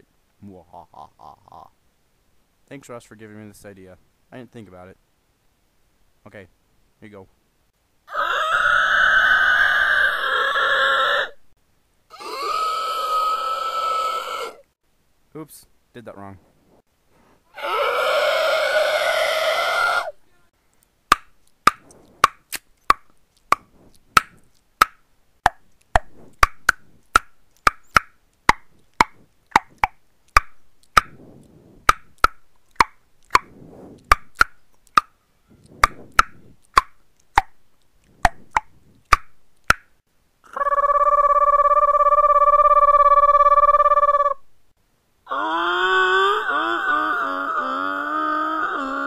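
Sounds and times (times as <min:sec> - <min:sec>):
mouth pops: 0:21.1 - 0:39.9.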